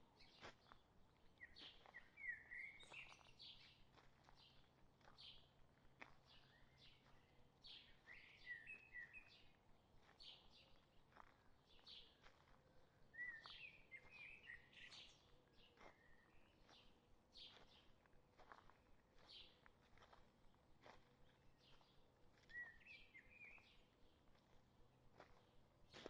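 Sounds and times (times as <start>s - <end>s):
birds chirping: 10.2s - 18.5s.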